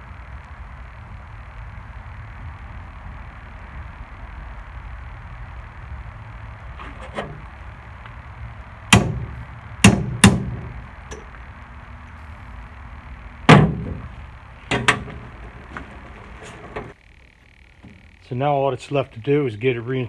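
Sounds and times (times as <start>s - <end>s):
steady low hum: 0.0s - 20.0s
sharp knocks on metal part: 8.9s - 11.2s.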